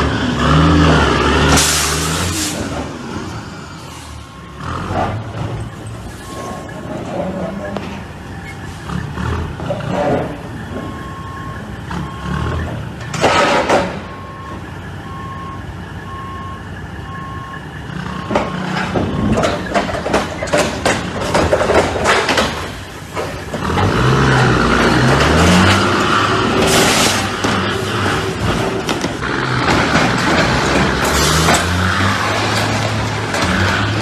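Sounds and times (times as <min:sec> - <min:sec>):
engine revving: 0:00.0 - 0:03.8, 0:08.8 - 0:10.4, 0:11.2 - 0:14.0, 0:23.5 - 0:34.0
reversing alarm beeping: 0:03.9 - 0:06.8, 0:10.2 - 0:13.2, 0:13.8 - 0:19.7
clattering knocks: 0:18.3 - 0:23.9.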